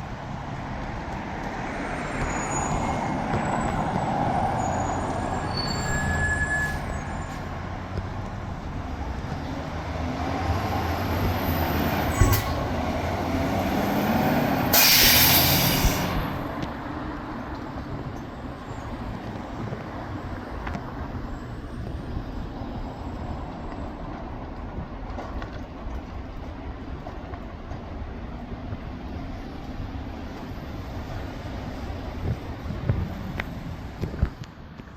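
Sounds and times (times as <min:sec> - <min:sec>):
diesel engine driving by: 0:00.0 - 0:19.6
tyre and road noise: 0:00.0 - 0:34.9
air brake hiss: 0:12.1 - 0:12.7, 0:14.7 - 0:16.4.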